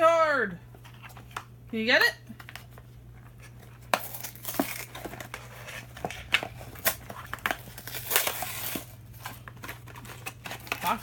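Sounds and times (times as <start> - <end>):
cardboard and plastic crinkling: 2.4 - 11.0.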